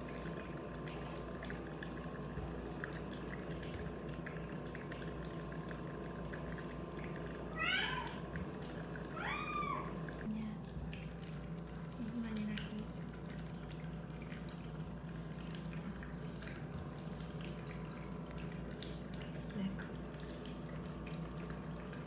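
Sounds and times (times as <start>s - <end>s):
nebulizer humming and hissing: 0.0s - 10.3s.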